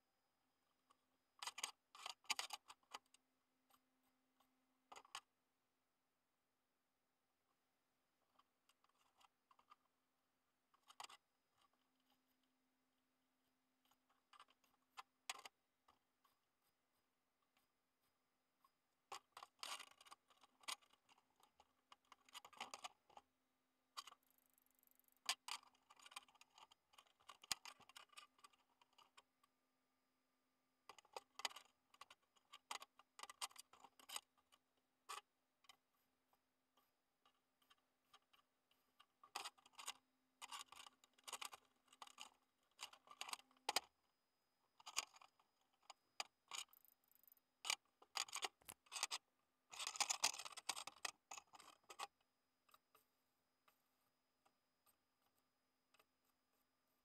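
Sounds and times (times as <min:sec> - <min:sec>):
faint irregular clicks: 0:00.6 - 0:05.8, 0:07.3 - 0:29.8, 0:30.5 - 0:57.0.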